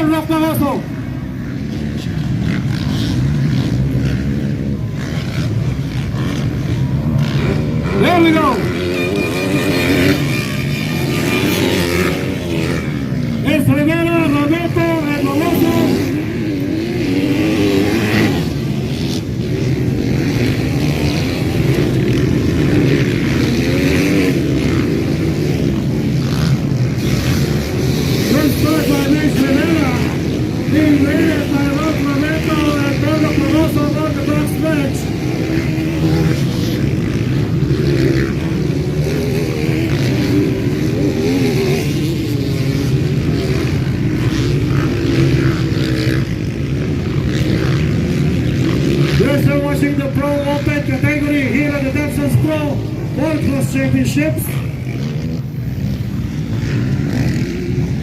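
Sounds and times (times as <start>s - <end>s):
motocross engines revving: 0.0s - 58.0s.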